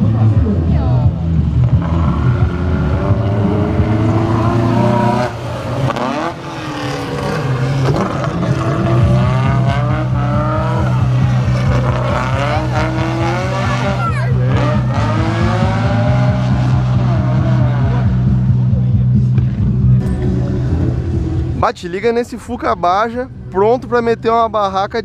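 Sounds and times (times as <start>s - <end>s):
race car engines revving: 0.0s - 25.0s.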